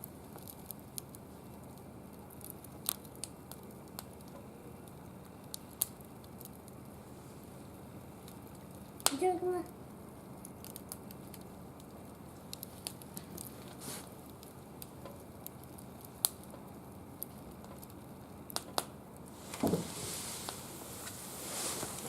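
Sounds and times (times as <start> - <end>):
low steady hiss: 0.0 - 22.0
wood fire crackling: 0.0 - 22.0
rustle: 12.7 - 14.2, 19.3 - 22.0.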